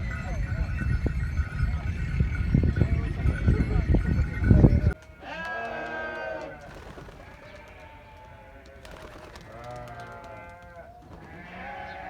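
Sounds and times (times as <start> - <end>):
sheep bleating: 5.0 - 8.9, 9.5 - 12.0.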